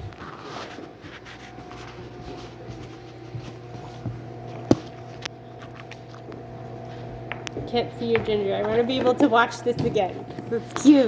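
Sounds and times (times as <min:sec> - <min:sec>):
dog crunching a hard treat: 0:03.0 - 0:09.3.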